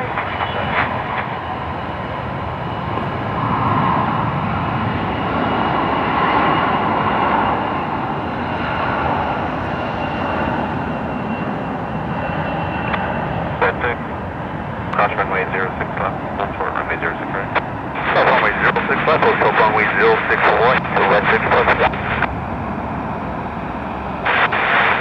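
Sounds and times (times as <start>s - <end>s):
aircraft engine rush and whine: 0.0s - 25.0s.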